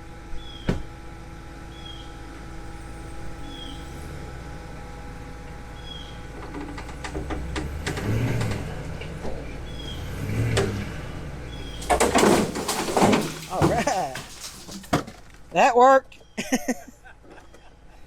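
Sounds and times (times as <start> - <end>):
truck engine under load: 3.5 - 15.5
metal knocks and creaks: 11.6 - 15.4.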